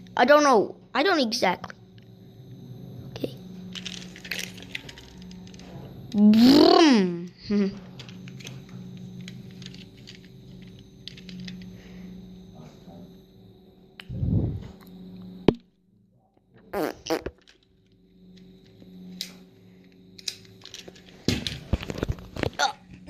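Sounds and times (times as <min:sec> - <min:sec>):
toy car rumbling: 0:09.5 - 0:11.4.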